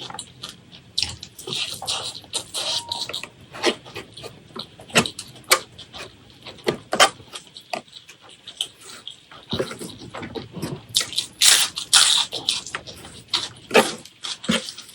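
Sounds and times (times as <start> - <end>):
chewing and lip smacks: 7.2 - 14.9.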